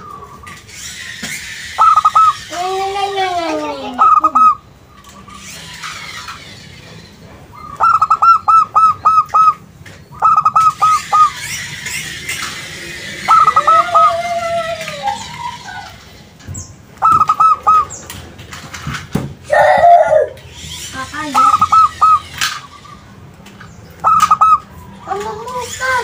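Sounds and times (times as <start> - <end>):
dove cooing: 1.8 - 2.4, 3.6 - 4.6, 7.6 - 9.6, 10.2 - 11.3, 13.2 - 15.9, 17.0 - 18.0, 19.5 - 20.4, 21.4 - 22.2, 24.0 - 25.2.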